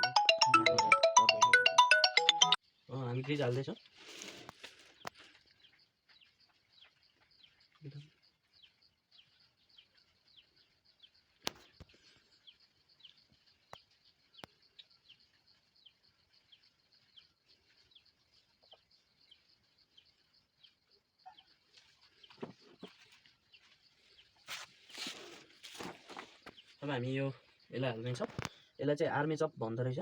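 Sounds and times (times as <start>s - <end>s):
bird chirping: 4.9s - 28.8s.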